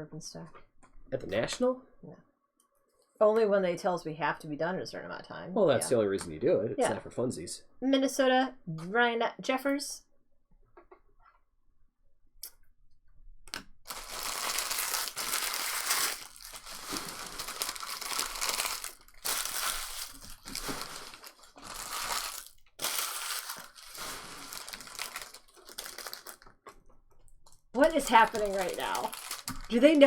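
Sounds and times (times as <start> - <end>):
card pack wrappers tearing: 13.9 - 26.6, 27.8 - 30.0.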